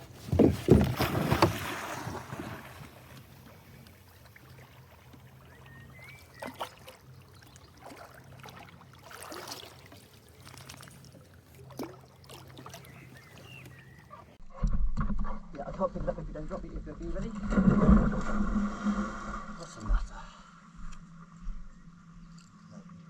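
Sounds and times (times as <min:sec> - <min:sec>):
water sloshing: 0:00.0 - 0:14.4
water splashing around a canoe: 0:00.0 - 0:14.4.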